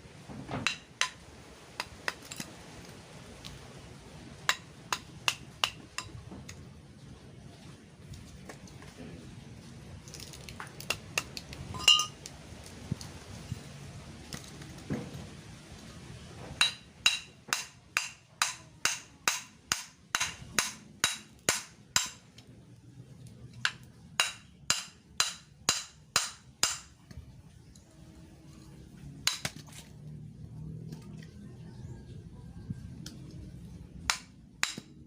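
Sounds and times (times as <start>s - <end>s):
hammer striking metal: 11.8s - 12.1s, 16.6s - 22.2s, 24.2s - 26.9s, 34.1s - 34.9s.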